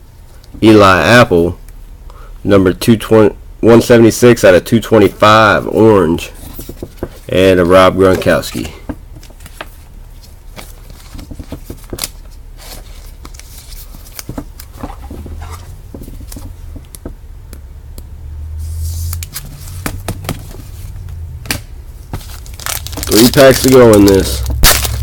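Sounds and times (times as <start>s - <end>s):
low steady hum: 0.0s - 25.0s
trading cards being handled: 5.0s - 17.1s, 18.6s - 25.0s.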